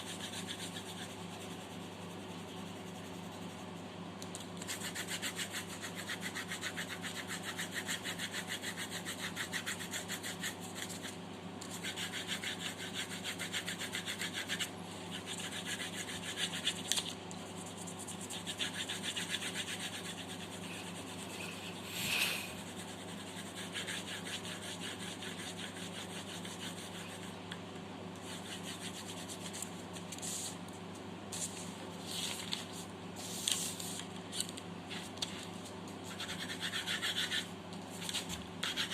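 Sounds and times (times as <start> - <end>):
pencil shading on paper: 17.8 - 27.3.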